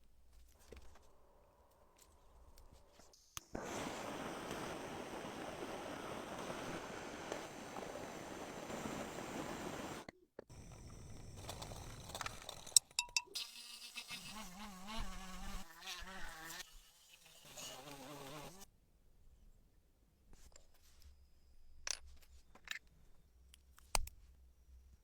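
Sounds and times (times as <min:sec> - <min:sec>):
small motorised tool buzzing: 0:13.4 - 0:18.6.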